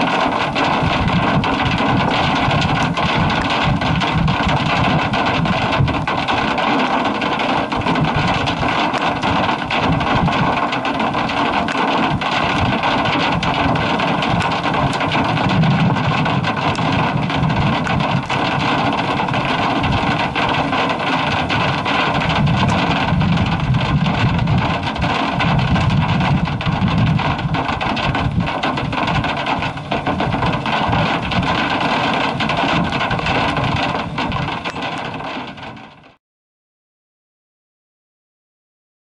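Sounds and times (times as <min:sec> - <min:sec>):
hailstones ticking on vehicle: 0:00.0 - 0:36.1
wind and vehicle rumble: 0:12.1 - 0:35.6.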